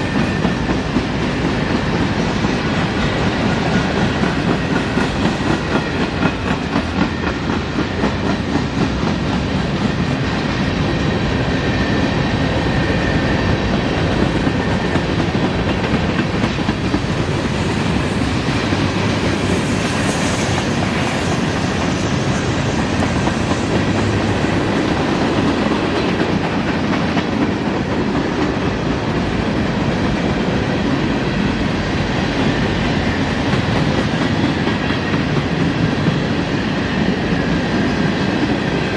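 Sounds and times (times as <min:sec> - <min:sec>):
train wheels clattering over rail joints: 0:00.0 - 0:38.9.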